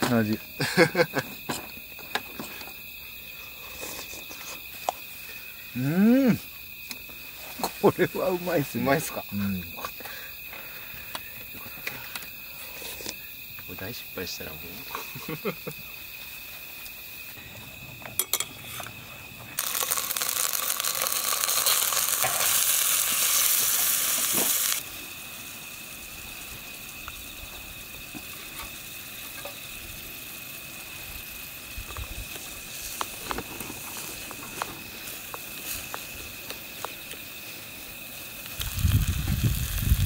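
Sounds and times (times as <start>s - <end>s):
food sizzling in a pan: 19.6s - 36.1s, 37.4s - 40.0s.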